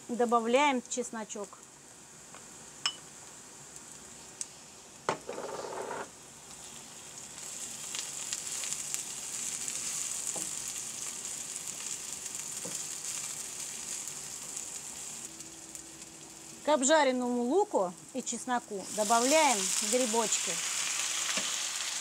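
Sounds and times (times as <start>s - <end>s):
onion sizzling in frying pan: 0.0s - 22.0s.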